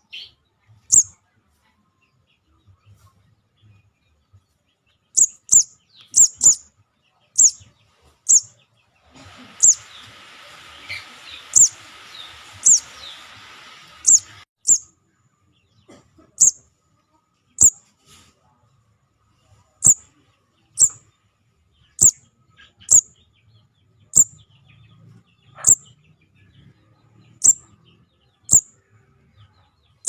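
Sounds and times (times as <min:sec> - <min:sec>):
young bird chirping: 0:00.9 - 0:01.2, 0:05.2 - 0:06.7, 0:07.3 - 0:07.7, 0:08.3 - 0:08.6, 0:09.4 - 0:10.1, 0:10.8 - 0:14.9, 0:16.4 - 0:16.6, 0:17.6 - 0:17.8, 0:19.8 - 0:20.0, 0:20.7 - 0:21.0, 0:21.9 - 0:23.2, 0:24.0 - 0:24.6, 0:25.5 - 0:25.9, 0:27.3 - 0:27.8, 0:28.5 - 0:28.7
steady hiss: 0:09.2 - 0:14.4.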